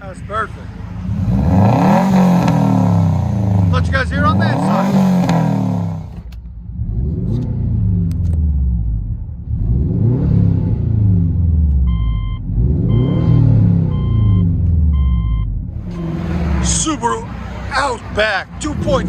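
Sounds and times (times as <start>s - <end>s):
car engine revving through exhaust: 0.8s - 19.0s
electronic beeps: 11.9s - 15.6s.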